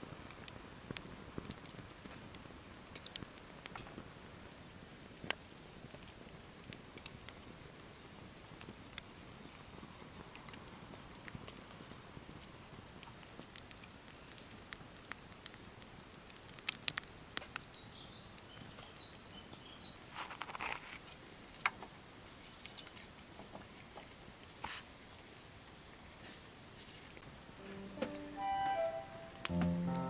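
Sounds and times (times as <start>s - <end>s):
faint clicks and crackles: 0.2s - 4.2s, 5.1s - 17.8s, 20.0s - 27.3s
high-pitched insect drone: 20.0s - 30.0s.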